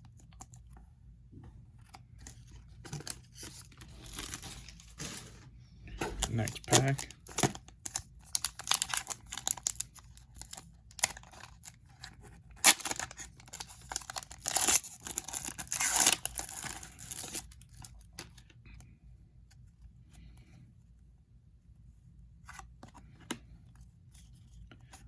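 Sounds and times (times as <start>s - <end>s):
plastic wrapper tearing and crinkling: 2.2s - 5.1s, 6.2s - 18.3s.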